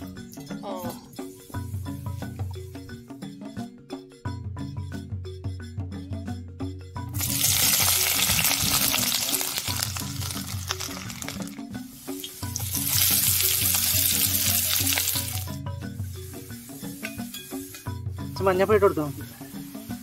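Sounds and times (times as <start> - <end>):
background music: 0.0 - 20.0
food sizzling in hot oil: 7.1 - 15.6, 16.3 - 18.3.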